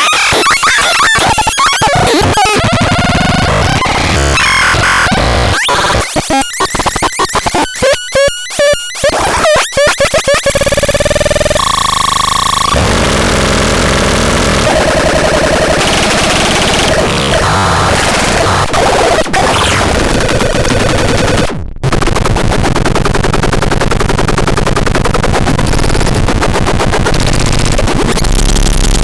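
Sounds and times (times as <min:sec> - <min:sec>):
harsh glitchy electronic noise: 0:00.0 - 0:29.0
steady held electronic tones: 0:00.3 - 0:12.8.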